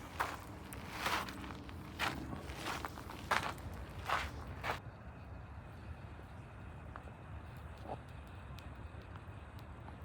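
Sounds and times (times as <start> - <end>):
footsteps of person walking: 0.0 - 4.8.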